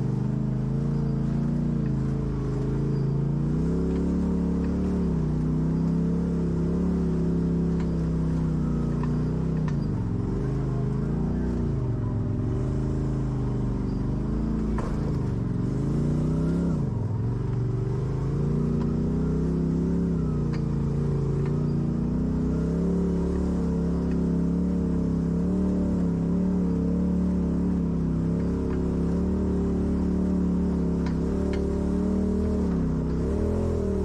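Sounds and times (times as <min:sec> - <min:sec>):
vehicle engine under load: 0:00.0 - 0:34.0.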